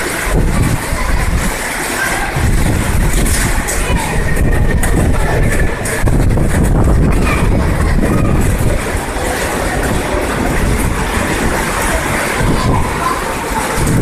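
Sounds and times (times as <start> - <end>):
heavy rain on roof: 0.0 - 14.0.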